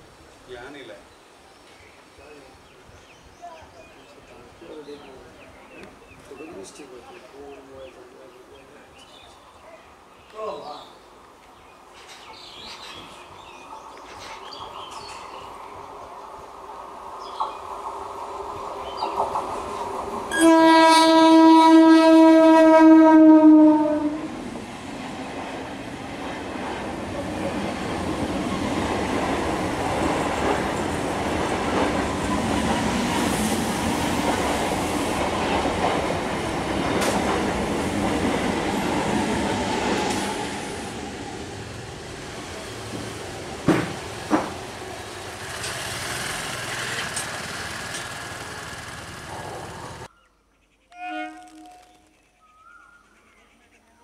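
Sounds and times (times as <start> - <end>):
train rumble and wheel clatter: 10.4 - 50.1
train horn: 20.3 - 24.4, 50.9 - 51.9.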